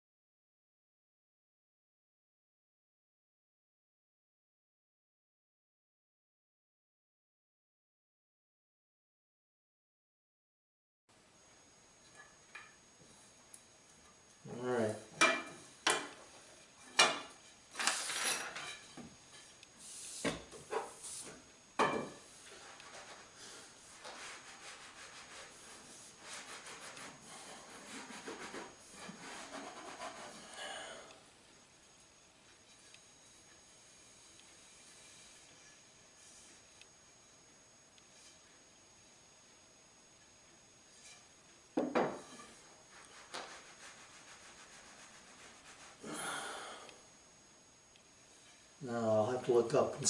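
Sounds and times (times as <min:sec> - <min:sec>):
parts rubbing and scraping: 0:14.9 - 0:30.7, 0:32.5 - 0:36.8, 0:40.8 - 0:46.0
sharp knocks on workbench: 0:41.8 - 0:42.2.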